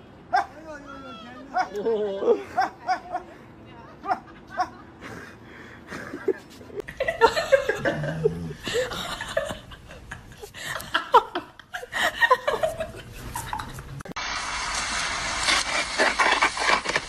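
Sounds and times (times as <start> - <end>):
people laughing: 1.7 - 13.8.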